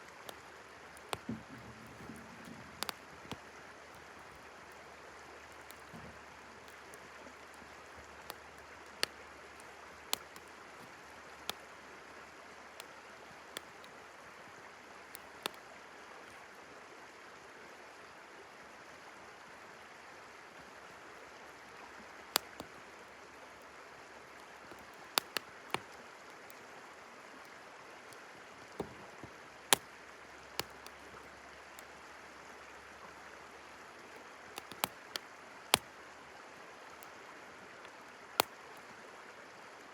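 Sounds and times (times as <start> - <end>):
campfire crackling and popping: 0.0 - 14.1, 15.1 - 15.6, 22.2 - 26.6, 27.4 - 32.0, 34.1 - 36.0, 38.3 - 38.6
river water flowing: 0.0 - 39.9.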